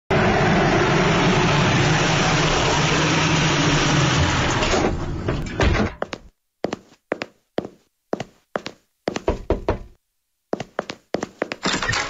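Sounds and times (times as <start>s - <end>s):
knock on a door: 9.2s - 10.0s.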